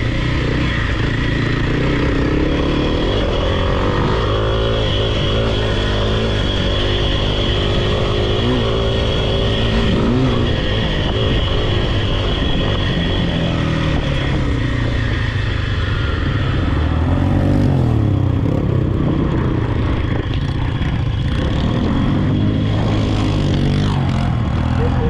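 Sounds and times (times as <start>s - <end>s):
off-road vehicle engine revving: 0.0s - 14.6s.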